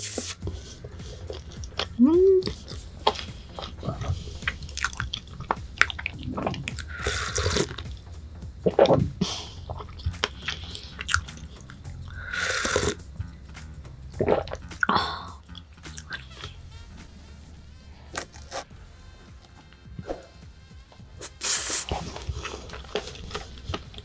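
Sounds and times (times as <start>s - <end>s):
soft background music: 0.0s - 24.0s
chewing with wet mouth clicks: 0.4s - 16.6s, 21.9s - 24.0s
breathy sounds: 0.4s - 18.7s, 21.2s - 24.0s.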